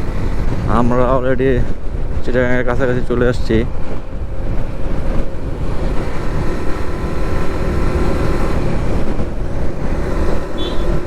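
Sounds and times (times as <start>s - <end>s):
wind and road noise: 0.0s - 11.0s
motorcycle engine running: 3.7s - 11.0s.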